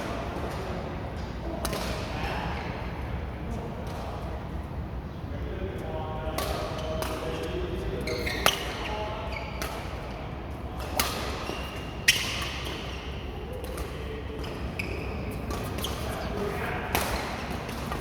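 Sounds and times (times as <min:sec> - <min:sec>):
racket hitting shuttlecock: 0:10.8 - 0:13.0, 0:16.9 - 0:18.0.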